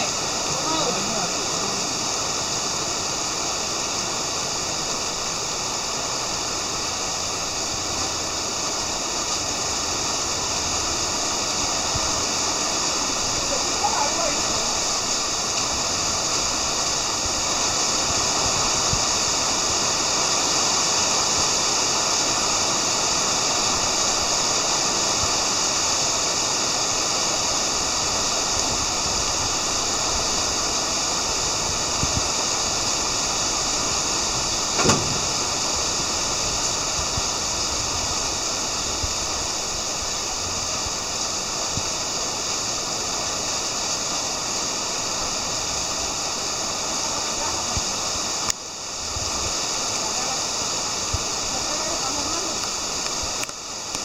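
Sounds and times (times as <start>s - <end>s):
heavy rain: 0.0s - 54.0s
sharp knock: 34.8s - 35.7s.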